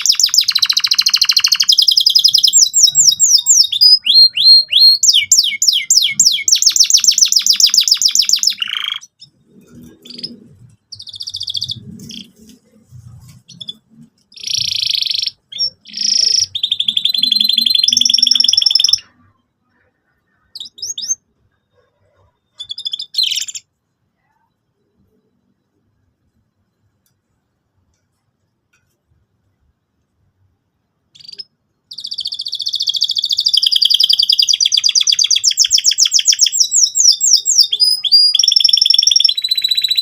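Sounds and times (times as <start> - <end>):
canary singing: 0.0 - 23.7, 31.1 - 40.0.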